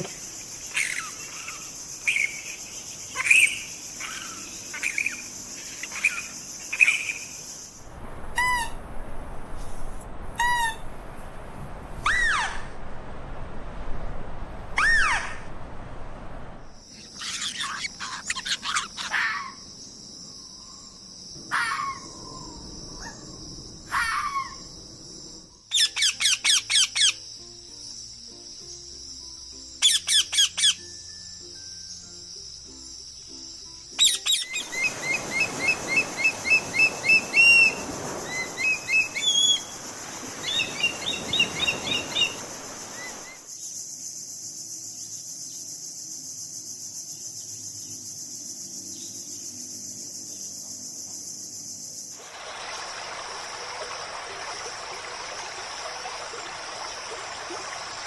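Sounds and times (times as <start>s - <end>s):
bird calls: 0.0s - 7.4s, 16.9s - 19.6s, 34.0s - 43.5s
high-pitched hiss: 30.8s - 58.0s.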